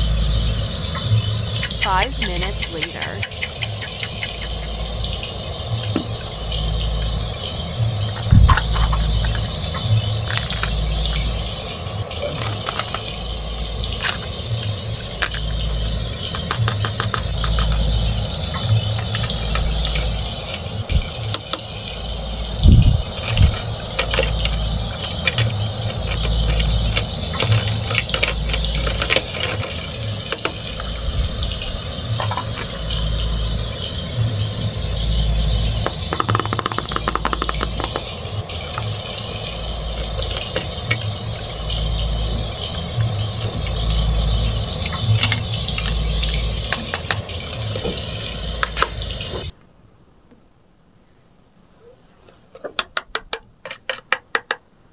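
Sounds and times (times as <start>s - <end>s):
toy stove sizzling sound effect: 0.0s - 49.5s
plastic toys clicking and clacking: 1.6s - 4.8s, 12.2s - 13.1s, 15.2s - 15.5s, 16.3s - 17.9s, 23.2s - 30.6s, 35.8s - 38.1s, 46.7s - 47.2s, 52.5s - 54.8s.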